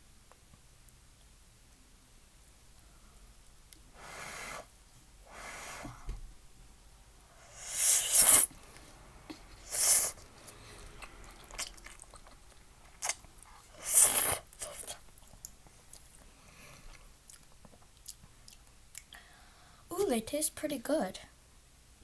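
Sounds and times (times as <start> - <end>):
person slurping noodles: 7.5 - 8.5, 9.3 - 15.0
quiet chewing and mouth clicks: 8.7 - 19.5.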